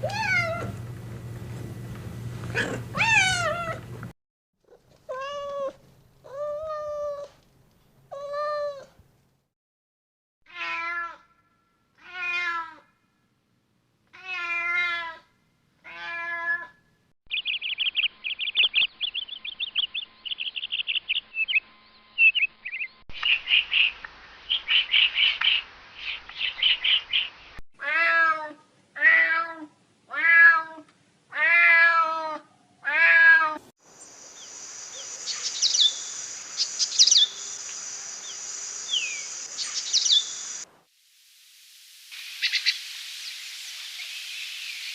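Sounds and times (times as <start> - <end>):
cat meowing: 0.0 - 0.8, 2.6 - 3.8, 10.5 - 11.2, 12.0 - 12.8, 14.2 - 15.2, 15.9 - 16.8, 27.8 - 33.6
small birds chirping: 17.3 - 27.4, 33.8 - 40.7
high-pitched hiss: 33.8 - 44.9.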